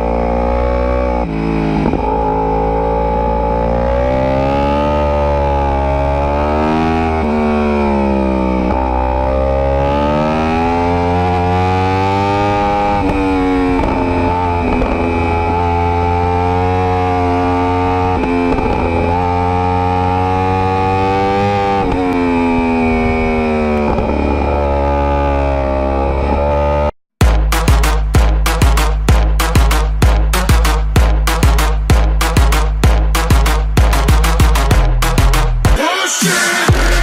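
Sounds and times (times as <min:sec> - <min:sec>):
motorcycle engine at high revs: 0:00.0 - 0:35.6
background music: 0:27.2 - 0:37.0.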